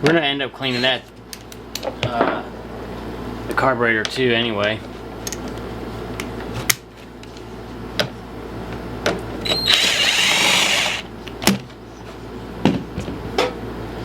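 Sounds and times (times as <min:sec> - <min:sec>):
cordless drill spinning: 0:09.5 - 0:11.1.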